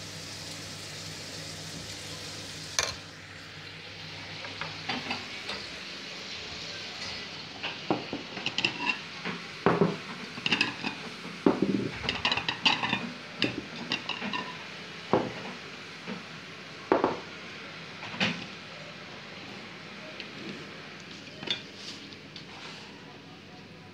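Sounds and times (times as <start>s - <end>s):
plates and cutlery clinking: 2.8s - 3.0s, 4.4s - 5.7s, 7.0s - 15.4s, 21.3s - 22.0s.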